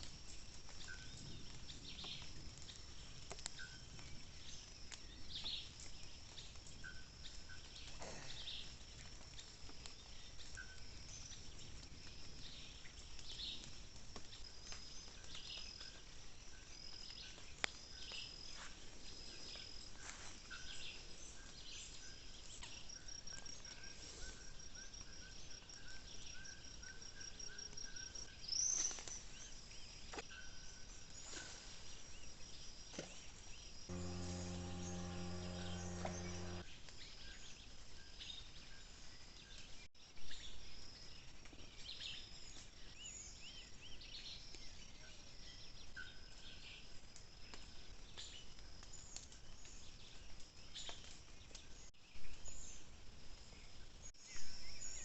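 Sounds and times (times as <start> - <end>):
insects chirring: 33.9 - 36.6
steady low hum: 33.9 - 36.6.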